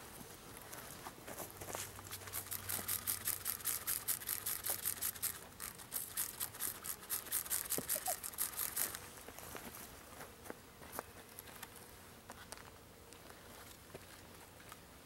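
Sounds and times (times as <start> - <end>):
spray bottle hissing squirts: 2.2 - 9.0.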